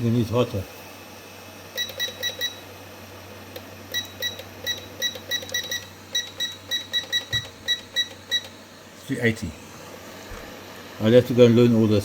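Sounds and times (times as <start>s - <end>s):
blower humming: 0.0s - 12.0s
short high beeps: 1.8s - 2.6s, 3.9s - 8.5s.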